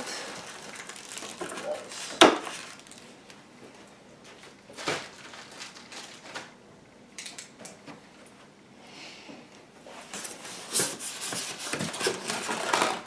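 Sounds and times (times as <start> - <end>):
packaging rustling: 0.0 - 3.4, 4.2 - 6.6, 10.1 - 13.0.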